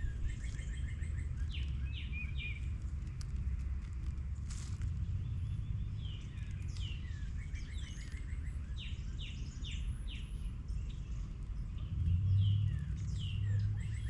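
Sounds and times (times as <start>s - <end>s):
low rumble: 0.0s - 14.0s
songbirds singing and calling: 0.0s - 14.0s.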